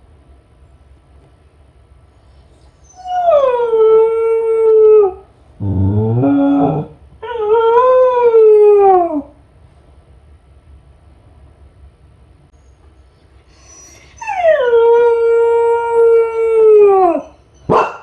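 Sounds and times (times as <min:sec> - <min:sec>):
dog howling: 0:02.8 - 0:09.4, 0:14.1 - 0:17.8.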